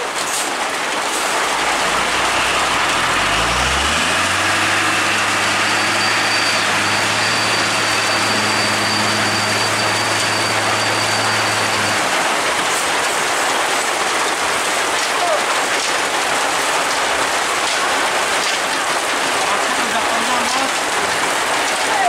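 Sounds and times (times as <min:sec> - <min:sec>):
heavy rain hissing: 0:00.0 - 0:22.0
heavy truck engine: 0:00.0 - 0:22.0
thin high whine: 0:01.6 - 0:12.5.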